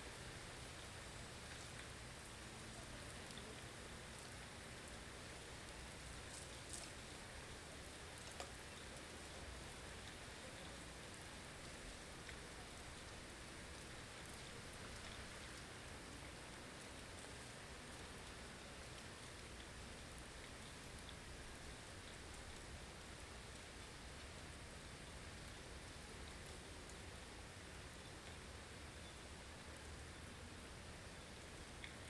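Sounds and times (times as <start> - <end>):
faint ticks: 2.7 - 4.4, 8.2 - 15.7, 31.4 - 32.0.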